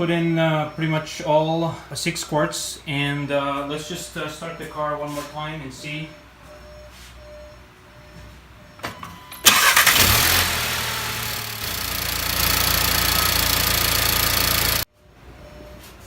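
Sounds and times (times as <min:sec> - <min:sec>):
car engine starting and idling: 0:09.4 - 0:14.9.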